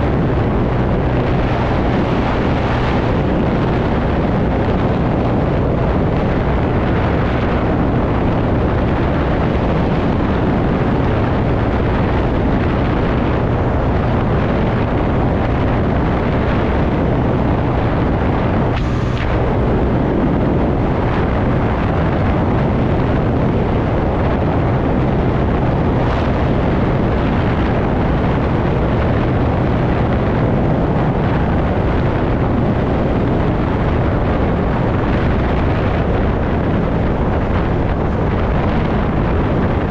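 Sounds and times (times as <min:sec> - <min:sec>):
scooter engine and road noise: 0:00.0 - 0:39.9
wind rush on microphone: 0:00.0 - 0:39.9
sharp falling pitch sound: 0:18.7 - 0:19.6.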